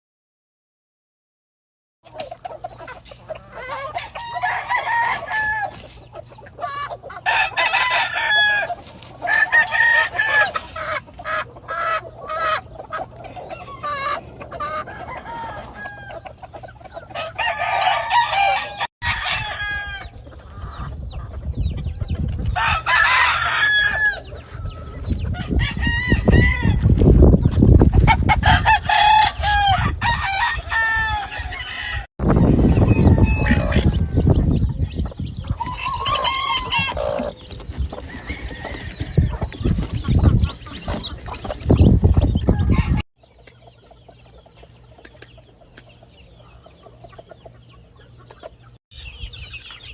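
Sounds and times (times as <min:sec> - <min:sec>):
chickens clucking: 0:02.0 - 0:49.9
roosters crowing: 0:02.4 - 0:21.2, 0:22.4 - 0:43.0.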